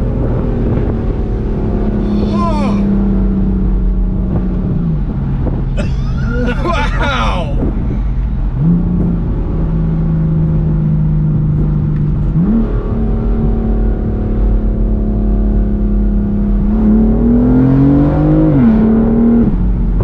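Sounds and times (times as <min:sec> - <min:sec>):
car engine and exhaust accelerating: 0:00.0 - 0:20.0.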